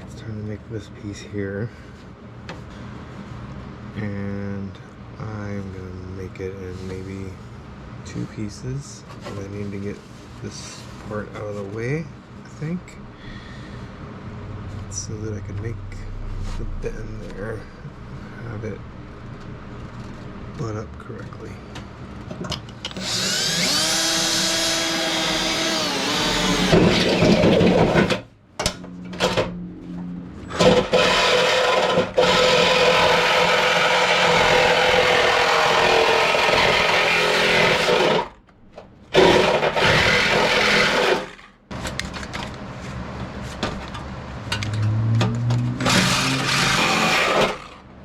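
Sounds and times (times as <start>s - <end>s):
power tool cutting sheet metal: 23.0s - 28.2s, 30.5s - 38.4s, 39.1s - 41.5s, 45.7s - 47.8s.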